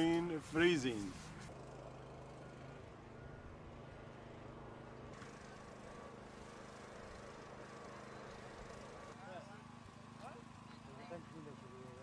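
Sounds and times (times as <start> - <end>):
low outdoor hum: 0.0 - 12.0.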